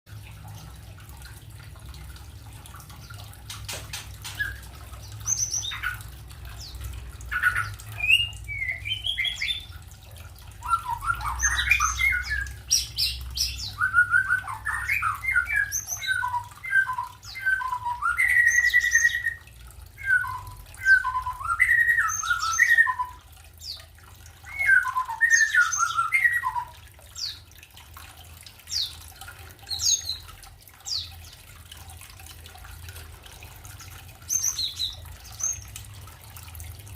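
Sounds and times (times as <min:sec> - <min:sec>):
small birds squawking and chirping: 0:03.0 - 0:09.8, 0:10.6 - 0:19.4, 0:28.6 - 0:31.4, 0:33.7 - 0:35.8.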